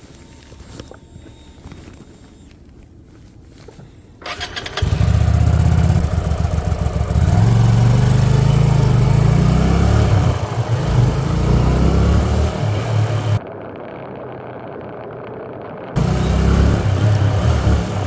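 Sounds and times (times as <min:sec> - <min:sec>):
motorcycle engine running: 0:04.2 - 0:18.0.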